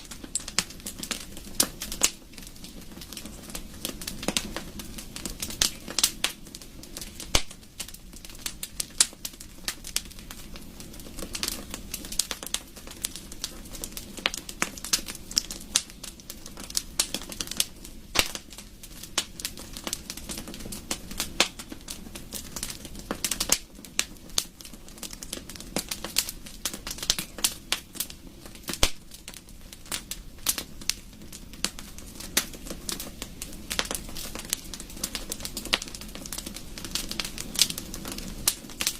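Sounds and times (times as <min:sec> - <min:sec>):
low rumble of flames: 0:00.0 - 0:38.9
wood fire crackling and popping: 0:00.0 - 0:38.9.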